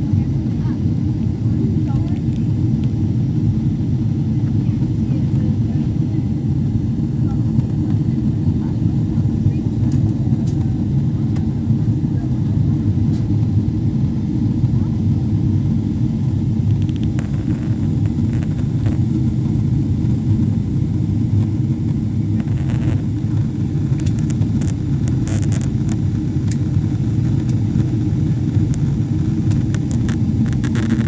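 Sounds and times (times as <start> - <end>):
airliner engine rumble: 0.0 - 31.0
faint clicks and ticks: 22.4 - 26.7, 27.3 - 31.0.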